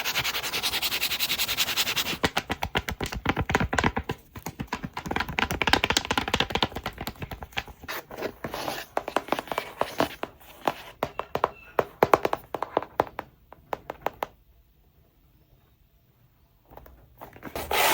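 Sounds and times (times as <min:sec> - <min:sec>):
hands tapping hard objects: 0:02.1 - 0:07.8, 0:08.9 - 0:14.4.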